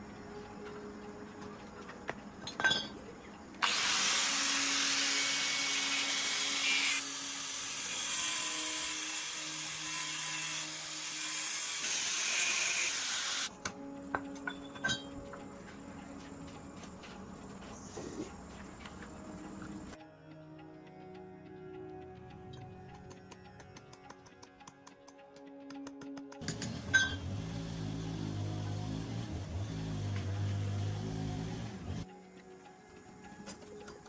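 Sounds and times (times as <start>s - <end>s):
power tool hissing: 3.6s - 13.5s.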